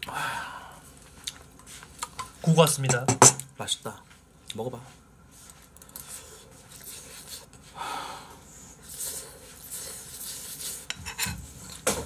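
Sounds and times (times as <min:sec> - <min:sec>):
person chewing: 0:01.0 - 0:02.2
metal spoon scraping a bowl: 0:09.7 - 0:11.8.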